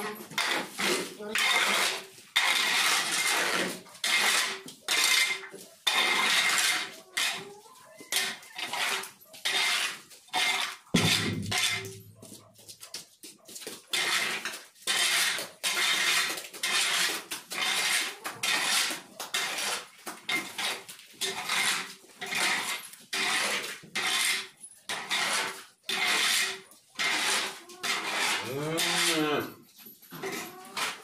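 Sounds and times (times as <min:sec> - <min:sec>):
metal tool scraping barn floor: 0:00.0 - 0:12.9, 0:13.8 - 0:31.0.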